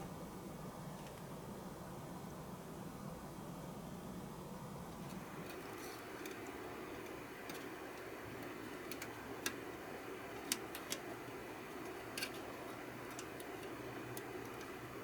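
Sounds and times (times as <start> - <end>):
steady low hum: 0.0 - 15.0
light sharp clicks and taps: 5.1 - 9.8, 10.4 - 15.0.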